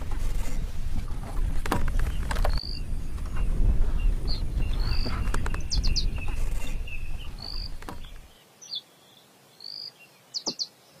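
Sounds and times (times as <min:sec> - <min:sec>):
low rumble: 0:00.0 - 0:08.3
bird whistling: 0:04.0 - 0:08.8.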